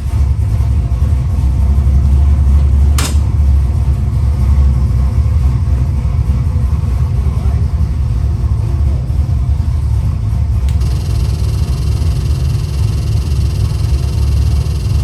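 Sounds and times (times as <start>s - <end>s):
engine running on dyno: 0.0s - 15.0s
sharp click: 3.0s - 3.3s.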